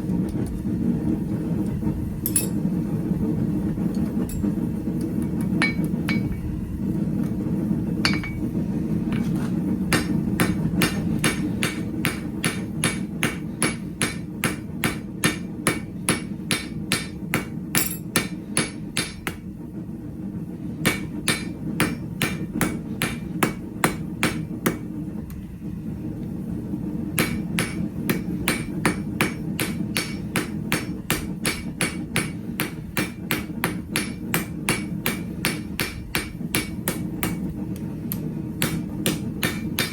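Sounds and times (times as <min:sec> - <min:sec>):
hammer blows on anvil: 0:09.9 - 0:19.4.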